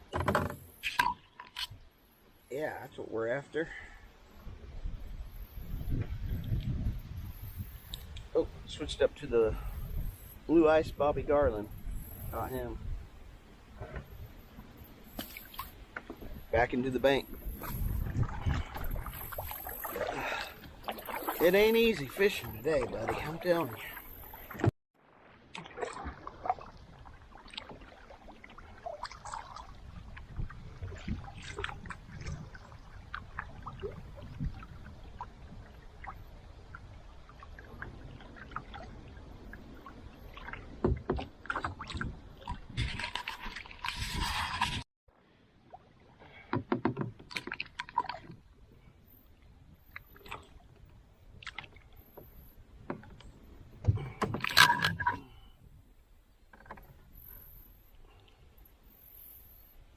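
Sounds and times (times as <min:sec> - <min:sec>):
water lapping against boat: 0:03.4 - 0:55.8, 0:56.4 - 0:59.7
wind buffeting microphone: 0:04.4 - 0:15.1, 0:15.8 - 0:23.9, 0:29.4 - 0:41.1.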